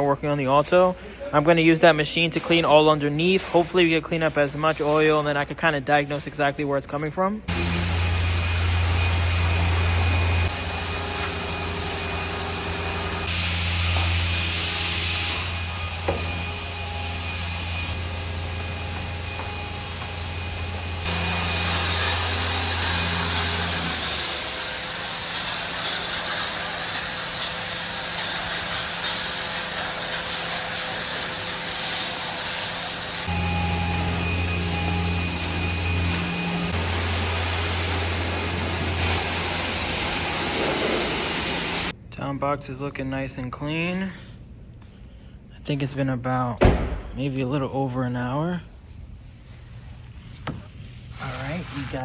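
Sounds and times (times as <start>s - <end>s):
pressure washer motor hum: 7.5s - 29.6s, 30.6s - 41.9s
water spray hissing: 36.7s - 41.9s.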